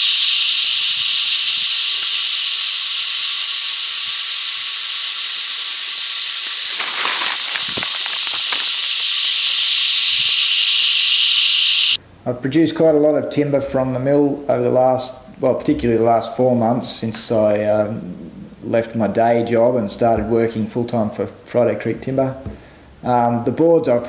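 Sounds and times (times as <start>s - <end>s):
cicadas droning: 0.0s - 12.1s, 14.0s - 24.0s
rustling: 5.5s - 10.0s.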